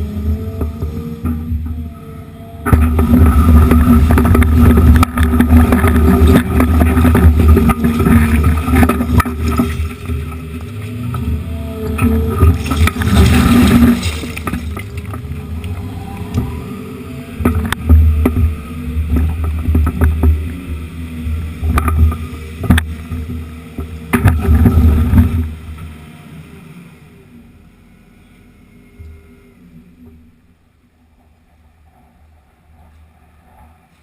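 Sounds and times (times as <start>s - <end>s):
diesel engine running hard: 0.0s - 30.7s
faint low hum: 0.0s - 34.0s.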